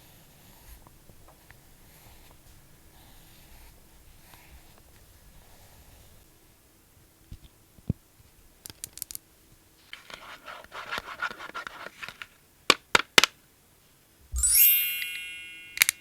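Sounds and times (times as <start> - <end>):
scratching and rubbing: 9.9 - 12.3.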